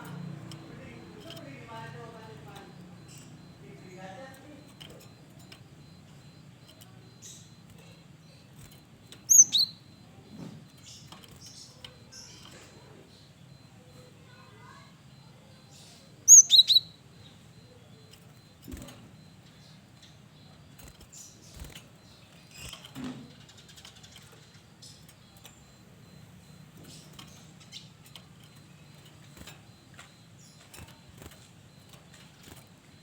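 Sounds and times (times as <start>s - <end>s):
bird chirping sharply: 8.7s - 10.0s, 15.8s - 17.3s.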